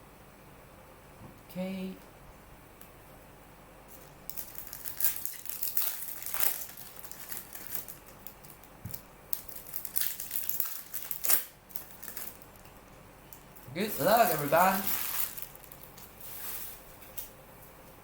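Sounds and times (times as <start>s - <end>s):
plastic wrapping crinkling: 3.9s - 17.3s.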